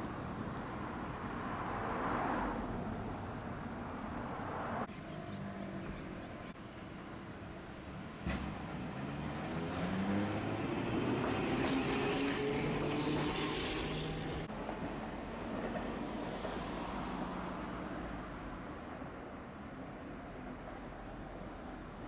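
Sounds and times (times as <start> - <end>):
tram clunk: 7.9 - 16.6.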